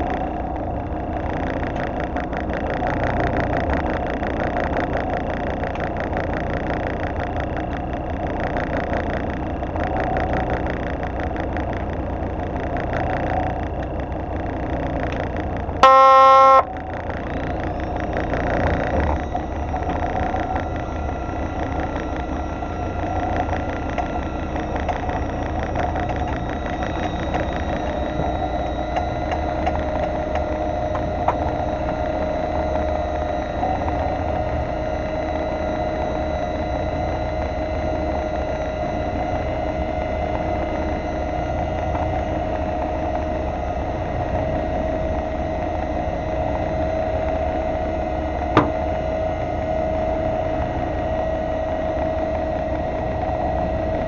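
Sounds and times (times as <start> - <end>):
boat engine running: 0.0 - 54.0
loud horn blast: 15.8 - 16.8.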